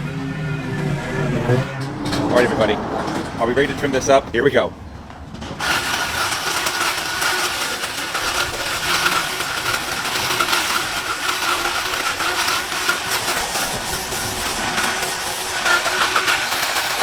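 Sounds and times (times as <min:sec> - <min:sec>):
hedge trimmer running: 0:05.6 - 0:17.0.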